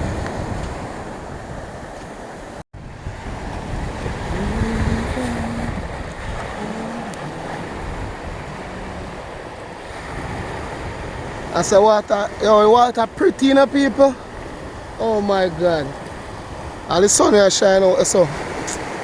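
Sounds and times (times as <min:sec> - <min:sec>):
wind buffeting microphone: 0:00.0 - 0:13.1
sea waves washing on beach: 0:00.0 - 0:19.0.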